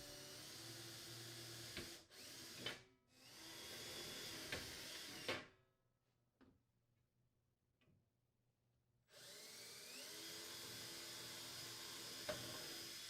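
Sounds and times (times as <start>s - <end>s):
faint power drill drilling: 0.0s - 5.5s, 9.1s - 13.0s.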